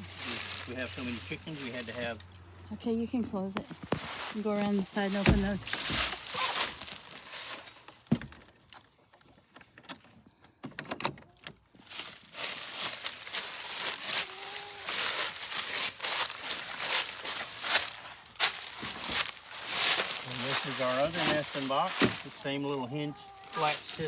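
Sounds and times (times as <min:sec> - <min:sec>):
footsteps crunching on dry ground: 0:00.0 - 0:02.5, 0:03.6 - 0:08.1, 0:11.8 - 0:24.0.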